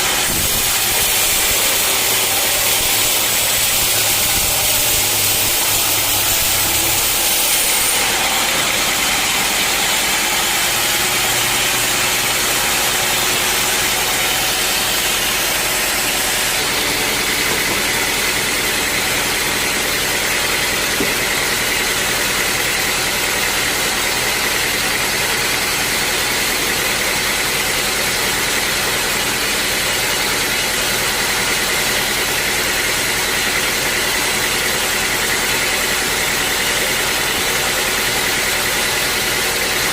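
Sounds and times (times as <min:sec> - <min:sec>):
steady higher whine: 0:00.0 - 0:22.3
sawmill saw and motor running: 0:00.0 - 0:39.9.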